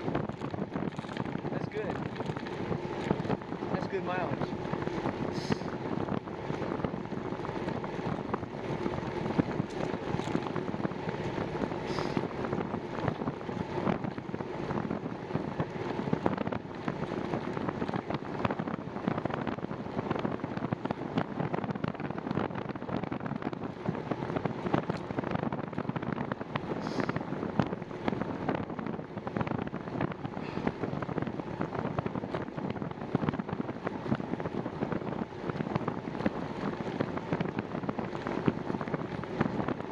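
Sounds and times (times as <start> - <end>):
small clicks and rattles: 0.0 - 3.4, 7.6 - 10.6
bicycle running noise: 0.0 - 39.9
wind buffeting microphone: 0.0 - 39.9.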